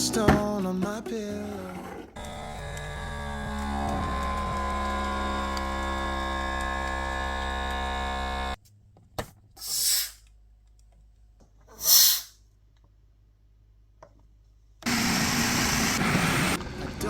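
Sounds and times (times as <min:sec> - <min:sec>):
background song: 0:00.0 - 0:02.1
puffs of hissing air: 0:09.6 - 0:10.2, 0:11.7 - 0:12.4.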